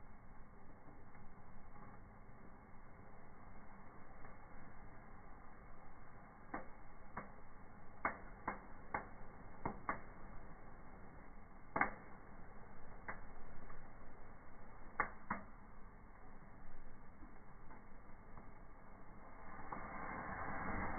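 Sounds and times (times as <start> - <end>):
low steady hiss: 0.0 - 20.9
wood fire crackling and popping: 0.1 - 20.9.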